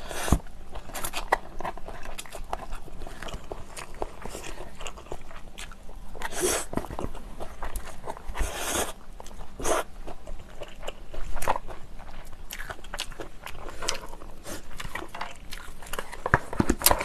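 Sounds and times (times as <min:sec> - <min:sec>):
chewing noodles: 0:00.0 - 0:17.0
small clicks and crunches: 0:12.6 - 0:17.0.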